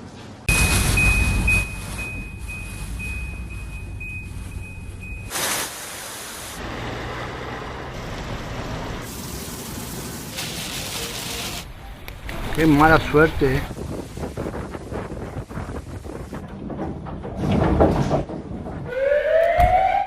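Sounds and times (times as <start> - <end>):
rapid electronic alarm beeps: 0.5 - 5.3
wind rumbling over microphone: 11.8 - 19.0.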